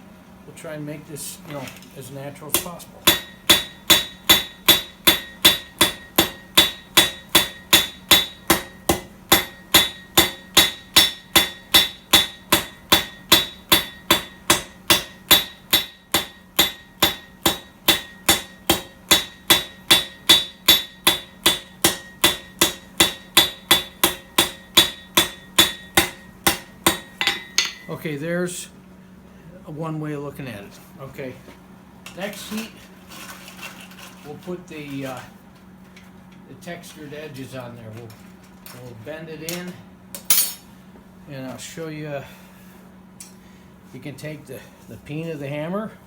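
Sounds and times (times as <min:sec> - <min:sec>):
hammer striking steel on anvil: 0:02.5 - 0:28.0, 0:40.2 - 0:40.7.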